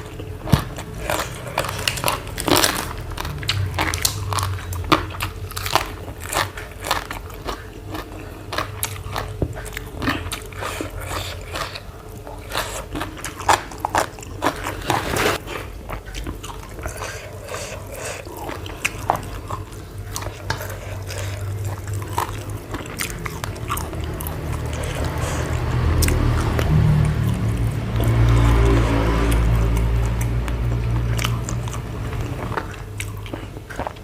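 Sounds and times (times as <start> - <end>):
chewing and biting food: 0.0 - 34.0
steady low sound: 21.5 - 33.1.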